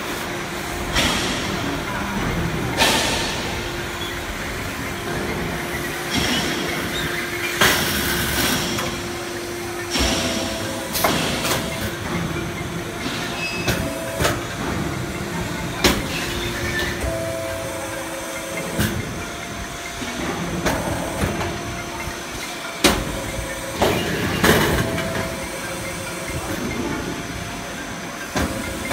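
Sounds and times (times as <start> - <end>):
machine hum and hiss: 0.0 - 28.9.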